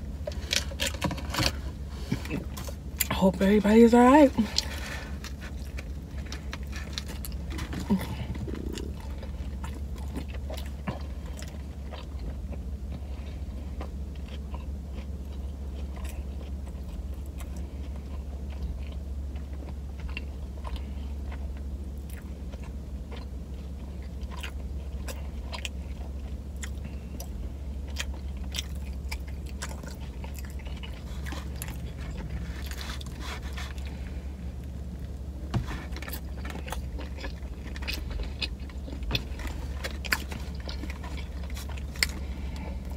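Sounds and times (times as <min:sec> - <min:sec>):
steady low hum: 0:00.0 - 0:42.9
close-miked chewing and biting: 0:04.0 - 0:42.9.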